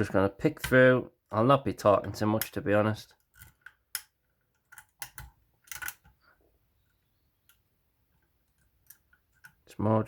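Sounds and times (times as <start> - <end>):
lock pick clicking in a lock: 3.2 - 6.2, 8.4 - 9.6.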